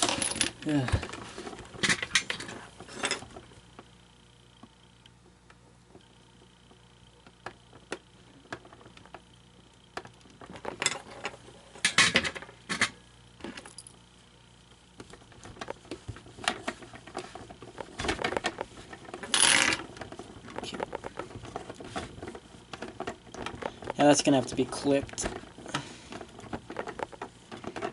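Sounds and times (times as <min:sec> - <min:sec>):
tools and parts clattering: 0:00.0 - 0:03.4, 0:10.4 - 0:13.9, 0:16.4 - 0:27.9
scraping and handling noise: 0:00.0 - 0:04.0, 0:04.6 - 0:09.3, 0:09.9 - 0:14.0, 0:15.0 - 0:27.9.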